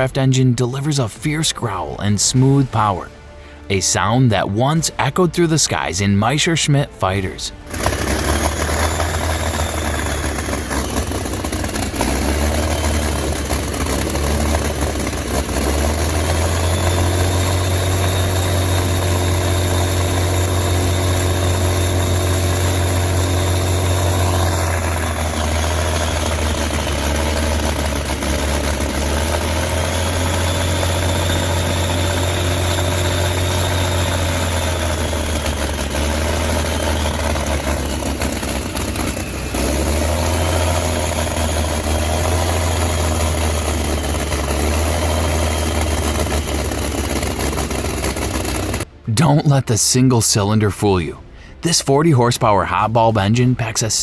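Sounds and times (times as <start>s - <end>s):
aircraft engine running: 0.0s - 54.0s.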